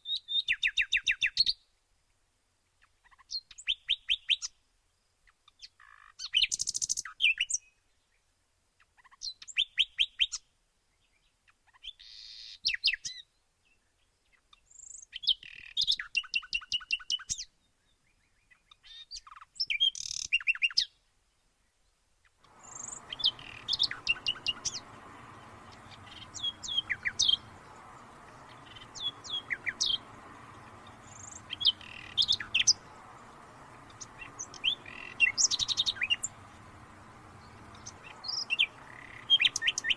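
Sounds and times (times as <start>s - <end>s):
songbirds chirping: 22.5s - 39.9s
steady background hiss: 22.5s - 39.9s.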